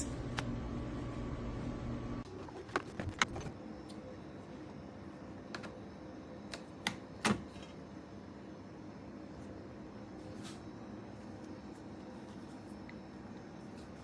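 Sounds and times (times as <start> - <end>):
faint steady hum: 0.0 - 2.2.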